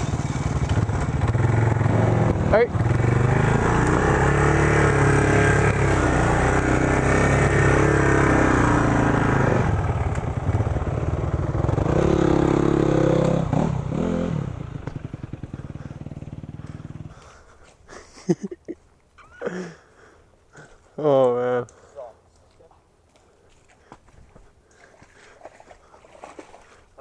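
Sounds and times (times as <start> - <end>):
single-cylinder engine revving: 0.0 - 17.3.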